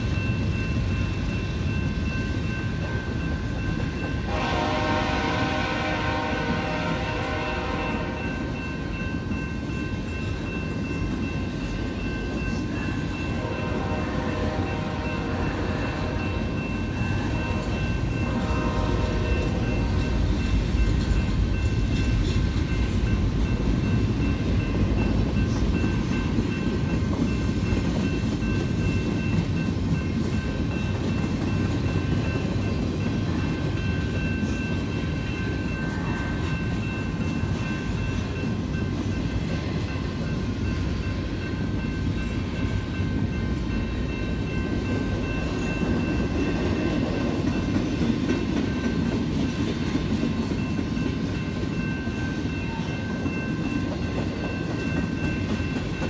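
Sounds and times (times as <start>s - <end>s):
crossing bell ringing: 0.0s - 56.0s
train wheels clattering on rail: 0.0s - 56.0s
locomotive horn: 4.3s - 8.4s, 13.3s - 16.5s, 17.2s - 20.2s.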